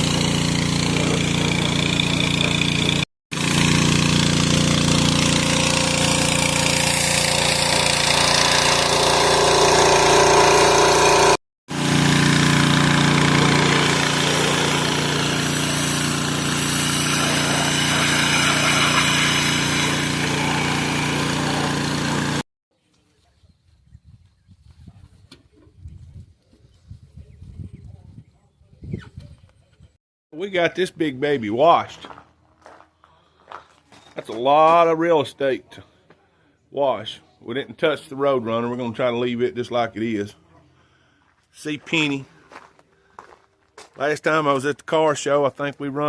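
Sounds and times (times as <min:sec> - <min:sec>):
pressure washer engine running: 0:00.0 - 0:22.4.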